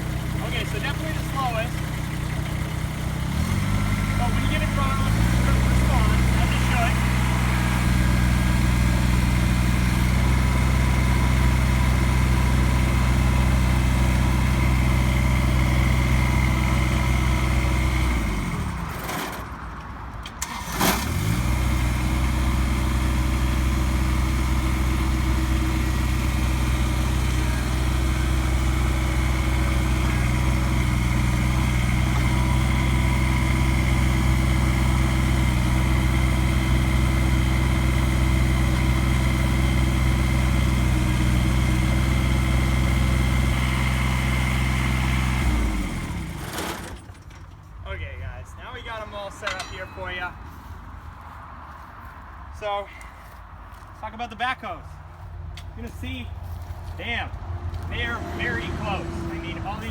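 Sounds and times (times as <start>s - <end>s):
diesel tractor engine running: 0.0s - 59.9s
engine starting: 18.2s - 19.6s, 20.2s - 22.1s, 45.5s - 47.6s.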